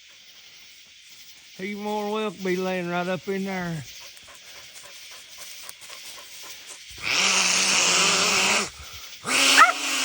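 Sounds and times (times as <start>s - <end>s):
dog baying: 9.5s - 9.8s.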